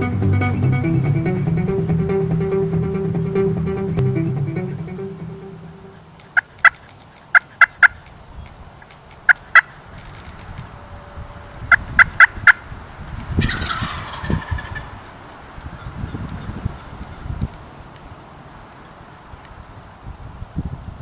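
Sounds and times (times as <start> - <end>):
background music: 0.0 - 6.1
turkey clucks: 13.4 - 15.2
turkey gobbling: 13.4 - 15.2.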